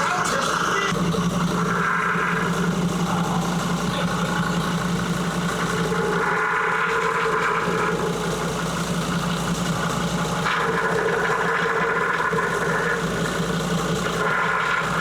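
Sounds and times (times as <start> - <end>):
diesel engine idling: 0.0 - 15.0
power steering whine: 0.0 - 15.0.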